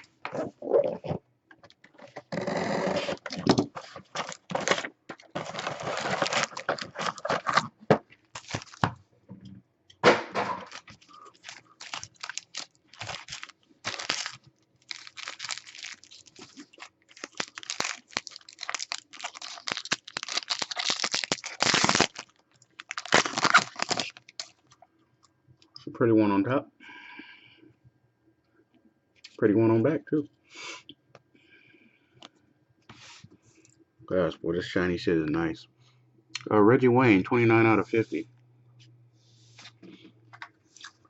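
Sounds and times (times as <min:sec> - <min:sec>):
wrapper tearing and crinkling: 0:02.3 - 0:07.7, 0:08.3 - 0:08.9, 0:10.6 - 0:24.6
cards rustling: 0:03.1 - 0:07.7, 0:08.3 - 0:08.9, 0:10.7 - 0:24.5.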